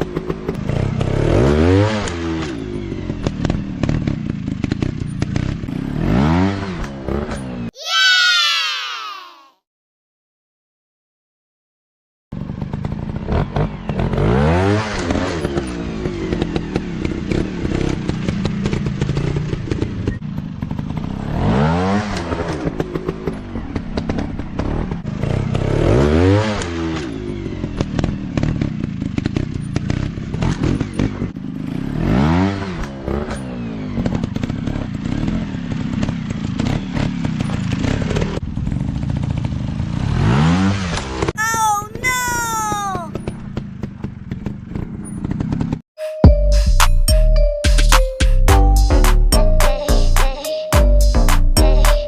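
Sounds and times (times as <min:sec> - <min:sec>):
dirt bike engine revving: 0:00.0 - 0:08.3, 0:12.4 - 0:41.3.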